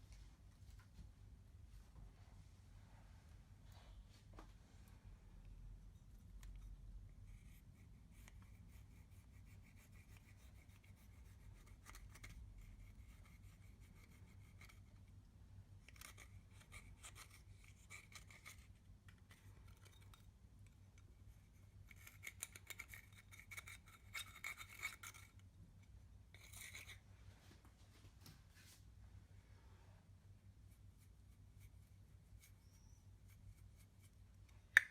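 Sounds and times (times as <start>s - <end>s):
scratching and rubbing of slime: 5.9s - 15.1s, 15.8s - 20.2s, 21.4s - 25.4s, 30.7s - 34.3s.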